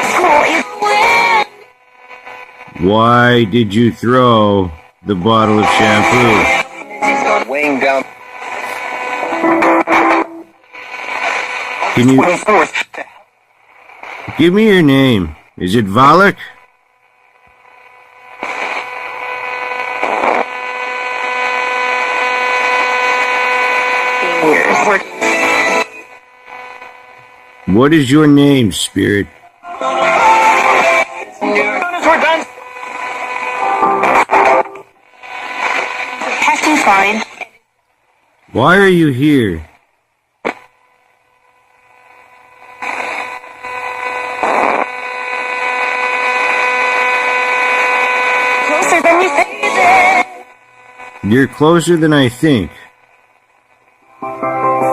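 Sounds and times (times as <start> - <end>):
radio static hissing: 0.0 - 54.9
radio click: 32.0 - 37.5, 40.4 - 40.8.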